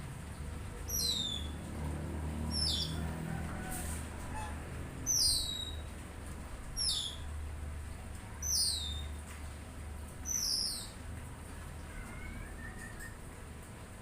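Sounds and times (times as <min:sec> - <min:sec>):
bird whistling downward: 0:12.0 - 0:13.2.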